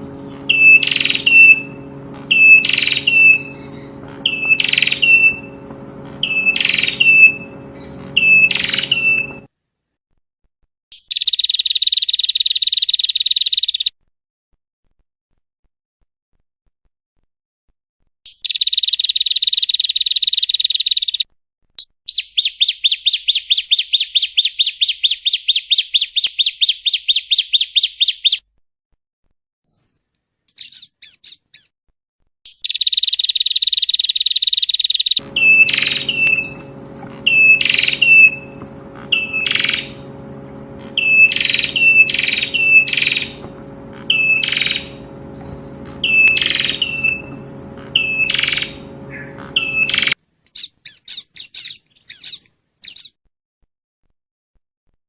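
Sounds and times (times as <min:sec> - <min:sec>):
bird trilling song: 0:00.0 - 0:09.5, 0:10.9 - 0:13.9, 0:18.3 - 0:28.4, 0:29.7 - 0:31.7, 0:32.5 - 0:53.2
sharp bird call notes: 0:00.0 - 0:09.5, 0:34.7 - 0:50.2
steady background hum: 0:00.0 - 0:09.5, 0:35.2 - 0:50.2.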